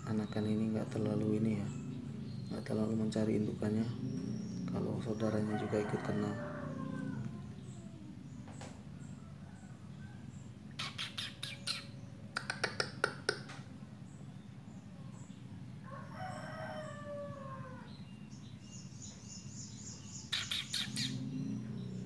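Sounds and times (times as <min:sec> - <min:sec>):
rooster crowing: 0:05.3 - 0:08.0, 0:08.9 - 0:10.4, 0:15.8 - 0:18.1
young bird harsh chirps: 0:10.7 - 0:13.5, 0:19.7 - 0:21.4
high thin repeated chirps: 0:10.8 - 0:13.0, 0:20.3 - 0:21.1.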